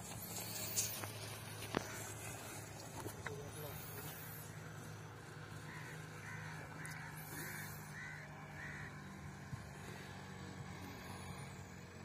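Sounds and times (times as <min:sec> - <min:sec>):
bird calling: 0:05.5 - 0:09.2.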